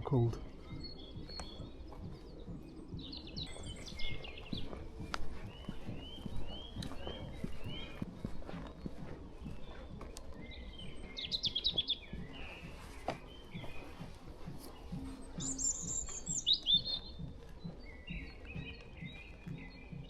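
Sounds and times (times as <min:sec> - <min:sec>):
footsteps on forest floor: 0:00.0 - 0:20.0
robin singing: 0:00.0 - 0:20.0.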